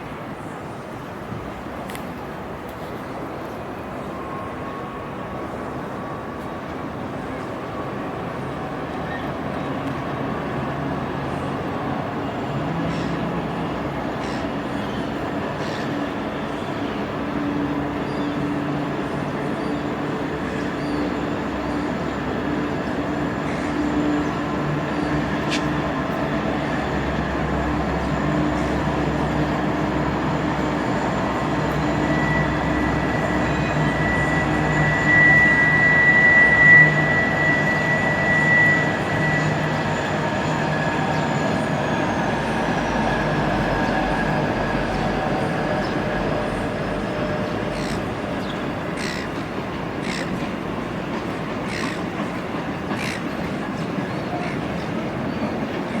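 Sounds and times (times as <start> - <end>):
train passing on track: 0.0 - 56.0.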